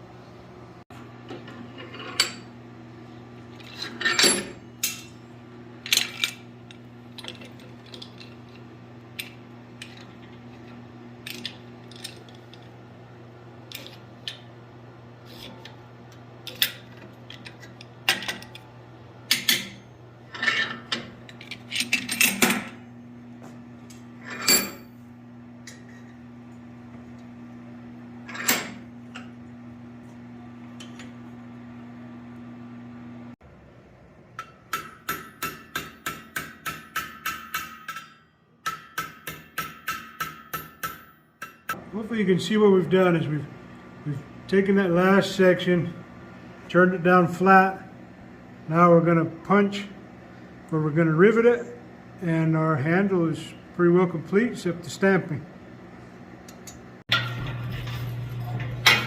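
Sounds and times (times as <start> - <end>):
metallic clanks of steel tools: 3.6 - 8.6, 19.3 - 22.8, 24.2 - 24.9, 34.4 - 41.8, 56.5 - 59.0.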